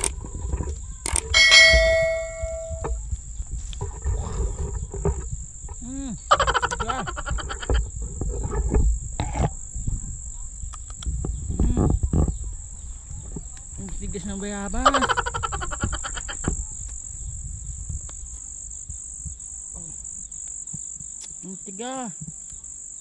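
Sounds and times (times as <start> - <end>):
wind rumble on microphone: 0.0 - 20.4
high insect drone: 0.0 - 23.0
ringing tone: 1.3 - 3.0
short rising and falling calls: 1.4 - 3.0.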